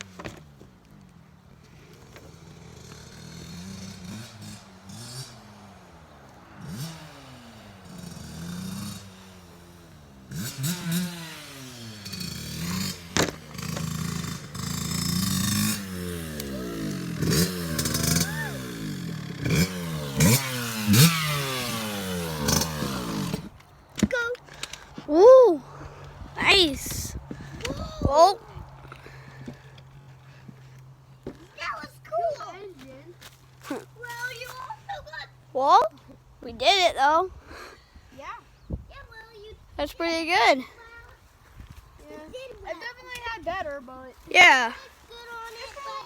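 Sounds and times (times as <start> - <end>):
dirt bike engine revving: 1.9 - 23.6.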